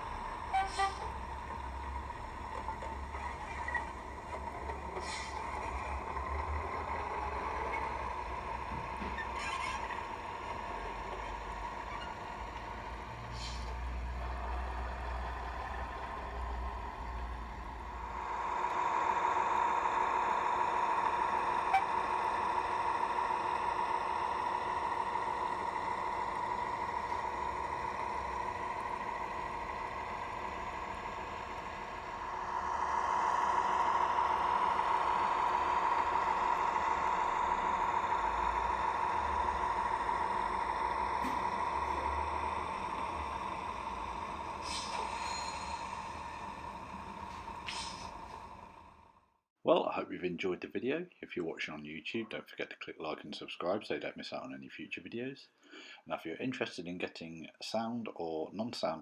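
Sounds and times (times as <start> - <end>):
diesel engine through small speaker: 0.0 - 49.3.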